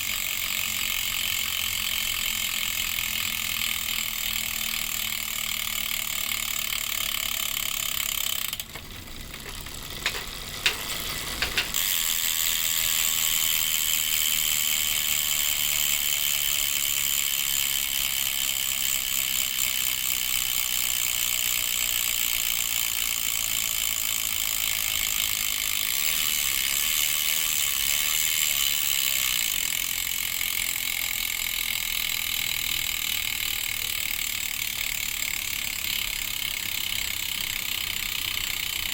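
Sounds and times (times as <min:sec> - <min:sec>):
bicycle freehub ratcheting buzz: 0:00.0 - 0:38.9
freehub clicks: 0:00.0 - 0:38.9.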